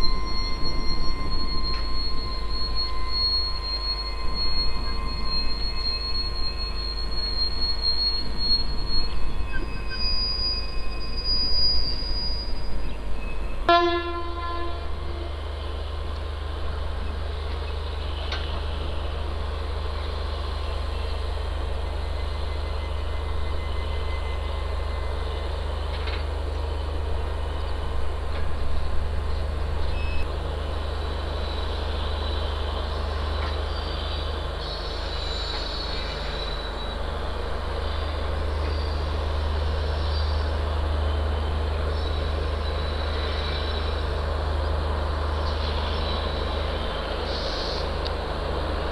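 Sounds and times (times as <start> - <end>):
train rolling past: 0.0 - 48.9
train wheel squeal: 0.0 - 48.9
train horn blast: 13.6 - 15.5.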